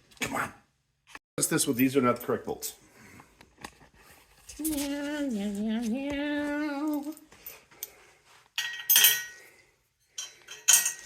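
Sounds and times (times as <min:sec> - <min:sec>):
person humming a tune: 0:04.6 - 0:07.2
metallic clinks of hardware: 0:08.6 - 0:09.4, 0:10.1 - 0:11.0.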